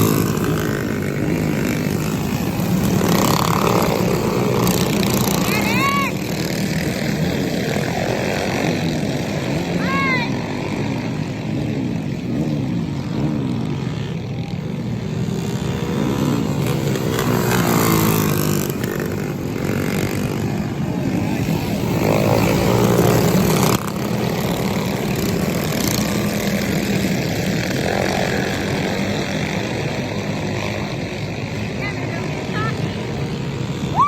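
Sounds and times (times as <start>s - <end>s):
mini bike engines racing: 0.0s - 34.0s.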